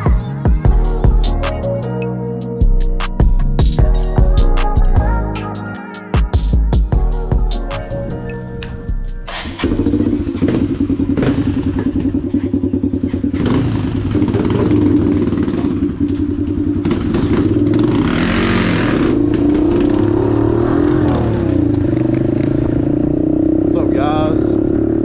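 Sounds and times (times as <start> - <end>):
dirt bike engine running: 9.3 - 25.0.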